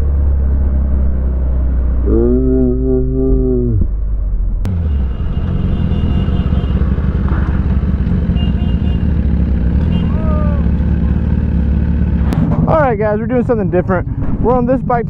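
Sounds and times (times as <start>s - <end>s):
faint voice: 2.0s - 3.9s, 10.1s - 11.2s
motorcycle engine running: 4.7s - 15.0s.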